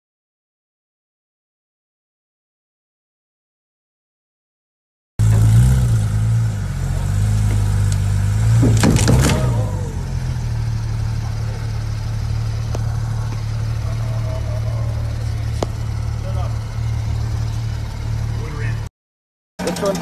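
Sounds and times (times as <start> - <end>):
car engine idling: 5.2 - 18.9, 19.6 - 20.0.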